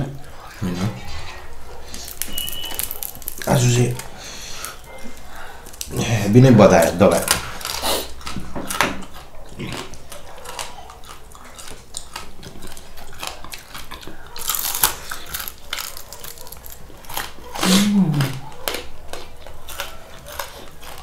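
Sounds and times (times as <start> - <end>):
crunchy chewing: 0.0 - 21.0
person humming: 17.6 - 18.4.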